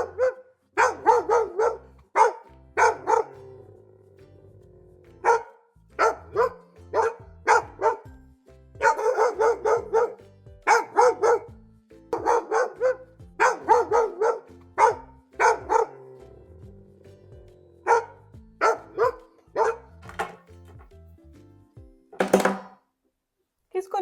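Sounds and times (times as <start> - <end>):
dog barking: 0.0 - 3.6, 5.2 - 8.1, 8.8 - 16.1, 17.8 - 20.3
soft background music: 0.0 - 22.6.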